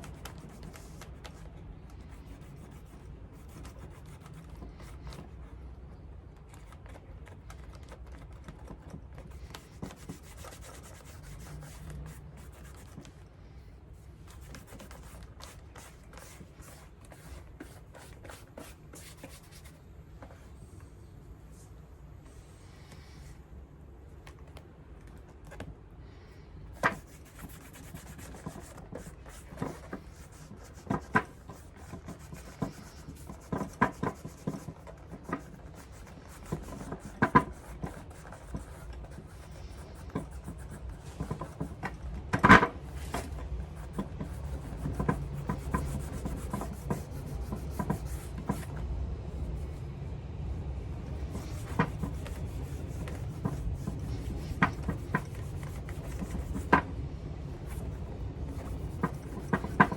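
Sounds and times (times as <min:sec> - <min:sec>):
scratchy rubbing on leather shoe: 0:43.0 - 0:48.7, 0:51.2 - 0:56.8.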